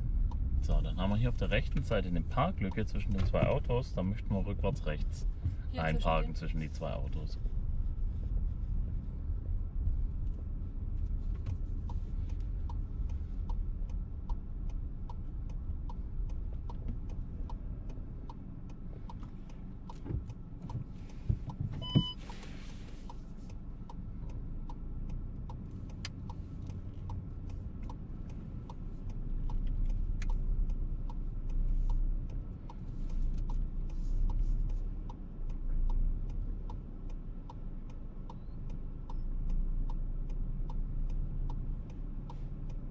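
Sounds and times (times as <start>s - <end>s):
car engine running low: 0.0s - 42.9s
turn signal ticking: 0.0s - 42.9s
short electronic beep: 21.8s - 22.2s.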